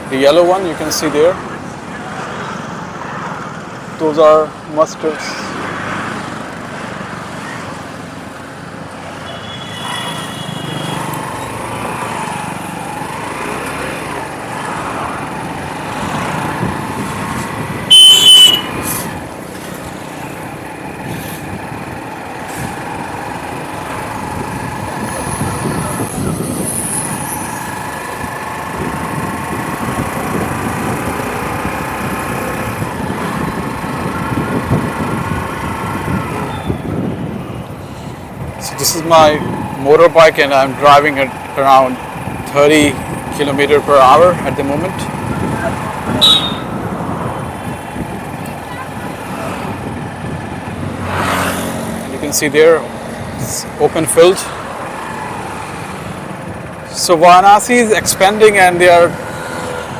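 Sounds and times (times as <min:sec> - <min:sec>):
road and wind noise: 0:00.0 - 0:59.9
loud horn honks: 0:17.9 - 0:18.9, 0:46.1 - 0:46.8.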